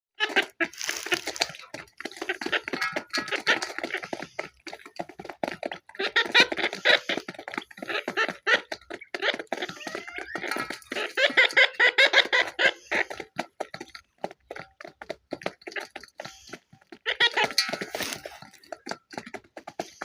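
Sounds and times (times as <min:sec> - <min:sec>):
birds chattering and calling: 0:00.2 - 0:14.1, 0:15.7 - 0:18.9
gliding bird calls: 0:09.6 - 0:13.0.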